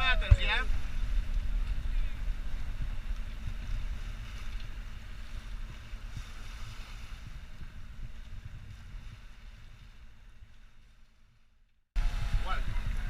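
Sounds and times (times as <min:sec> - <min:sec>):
wind buffeting microphone: 0:00.0 - 0:11.0, 0:12.0 - 0:13.0
water washing past yacht: 0:00.0 - 0:13.0.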